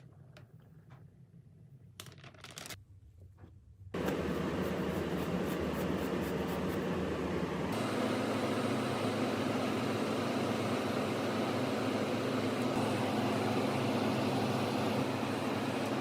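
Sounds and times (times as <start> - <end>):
steady machine noise: 4.0 - 16.0.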